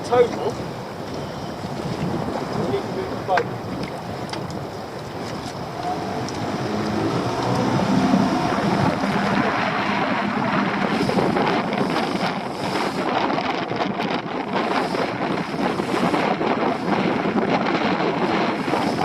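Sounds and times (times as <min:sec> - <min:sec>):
water rushing past boat: 0:00.0 - 0:19.0
wind buffeting microphone: 0:00.0 - 0:19.0.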